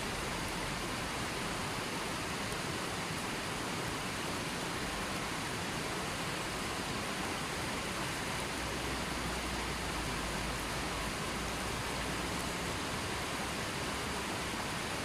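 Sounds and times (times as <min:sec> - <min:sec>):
river flowing: 0:00.0 - 0:15.0.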